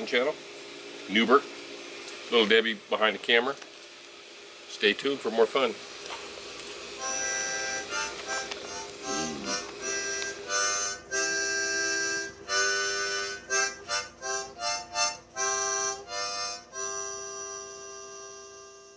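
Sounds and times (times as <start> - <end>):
harmonica playing: 7.0 - 18.9.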